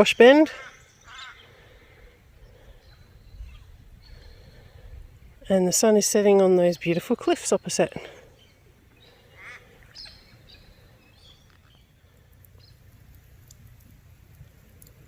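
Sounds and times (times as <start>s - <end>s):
faint bird calls: 0.5s - 5.2s, 8.2s - 12.9s.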